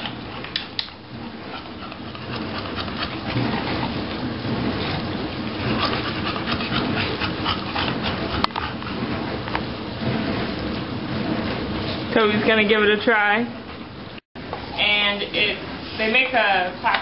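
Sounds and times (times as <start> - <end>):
dogs panting: 0.0 - 9.4.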